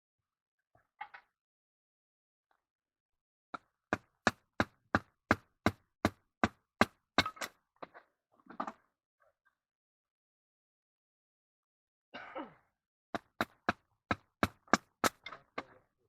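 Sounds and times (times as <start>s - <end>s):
tent stake being hammered: 3.9s - 7.5s, 13.2s - 15.3s.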